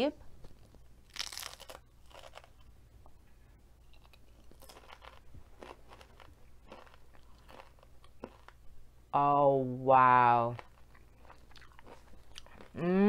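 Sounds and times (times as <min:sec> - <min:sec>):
person chewing crunchy chips: 0:00.5 - 0:02.7, 0:03.8 - 0:08.6, 0:10.4 - 0:12.9.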